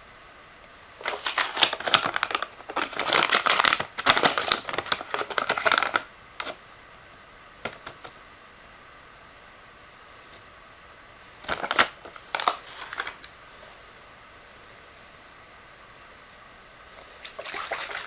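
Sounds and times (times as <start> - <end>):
crinkling handling noise: 1.0 - 6.6, 11.4 - 13.8, 15.1 - 18.0.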